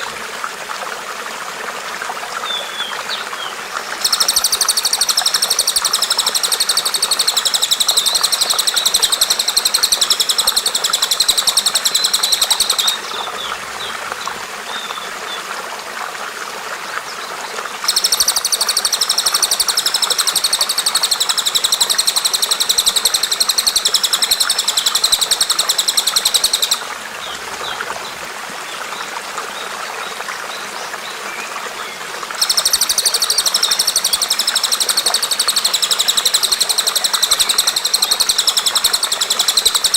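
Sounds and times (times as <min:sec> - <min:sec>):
soft bird chirping: 0:02.5 - 0:14.0
loud high rapid bird trill: 0:04.0 - 0:13.9, 0:17.9 - 0:26.9, 0:32.4 - 0:39.9.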